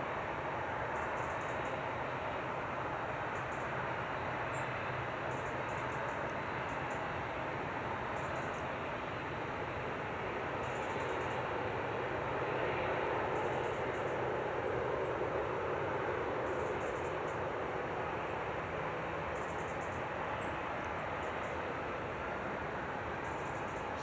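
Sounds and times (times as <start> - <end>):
jet engines roaring: 11.5 - 24.0.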